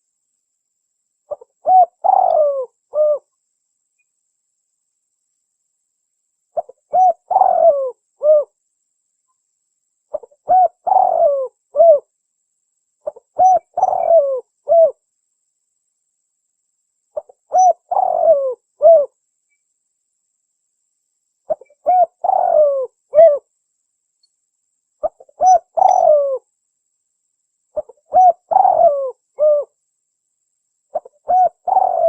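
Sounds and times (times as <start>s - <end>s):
dove cooing: 1.3s - 3.3s, 6.6s - 8.6s, 10.1s - 12.1s, 13.0s - 15.0s, 17.2s - 19.1s, 21.5s - 23.5s, 25.0s - 26.5s, 27.8s - 29.8s, 30.9s - 32.0s.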